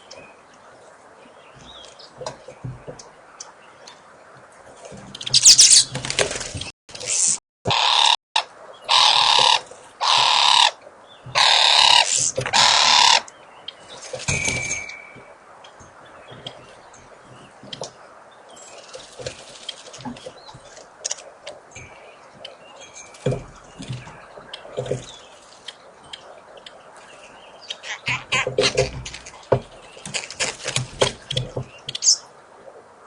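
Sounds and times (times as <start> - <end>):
repeated bird calls: 7.7 - 32.4.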